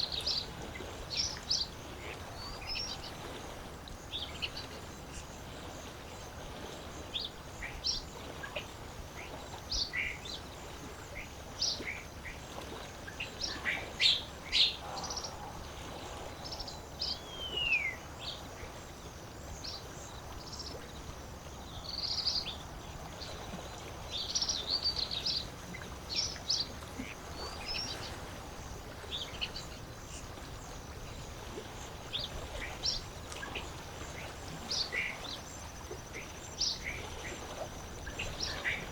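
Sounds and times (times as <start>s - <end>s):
lake water hiss: 0.0s - 38.9s
small birds chirping: 7.2s - 19.0s.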